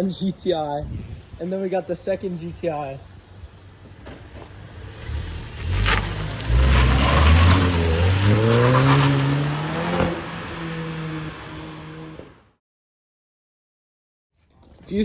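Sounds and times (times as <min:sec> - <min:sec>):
car engine accelerating: 0:03.1 - 0:12.6.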